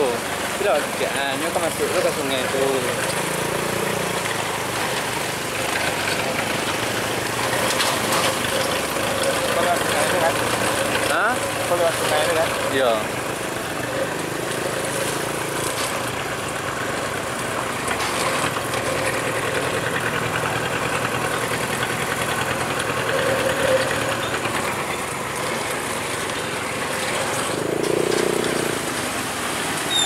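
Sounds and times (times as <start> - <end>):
road noise: 0.0 - 30.0
vehicle engine running: 0.0 - 30.0.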